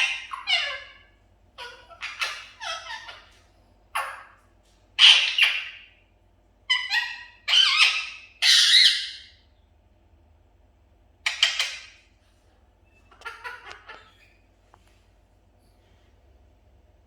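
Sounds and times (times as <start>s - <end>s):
budgerigar calls: 0.0s - 4.4s, 5.0s - 5.9s, 6.7s - 9.4s, 11.2s - 12.0s, 13.1s - 14.3s.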